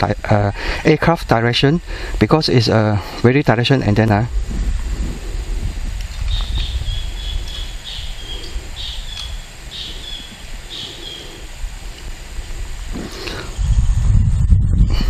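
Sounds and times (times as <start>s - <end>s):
wind rumble on microphone: 3.5s - 15.0s
bird calling: 6.1s - 13.7s.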